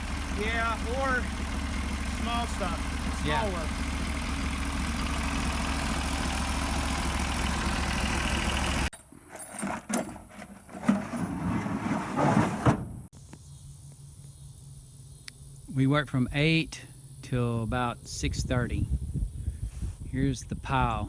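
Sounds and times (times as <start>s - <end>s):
engine idling: 0.0s - 9.2s.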